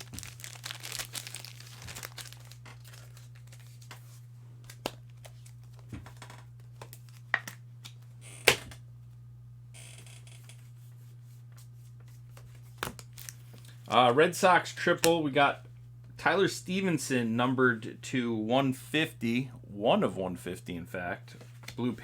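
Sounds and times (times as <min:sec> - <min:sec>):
foil wrapper crinkling and tearing: 0:00.0 - 0:05.8, 0:12.8 - 0:13.8
low electrical hum: 0:00.0 - 0:22.0.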